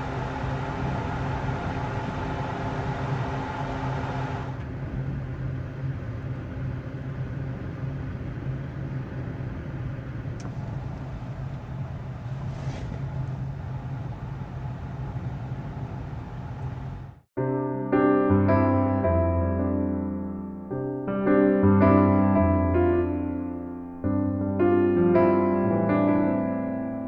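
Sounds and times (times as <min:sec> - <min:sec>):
low vehicle rumble: 0:00.0 - 0:06.1.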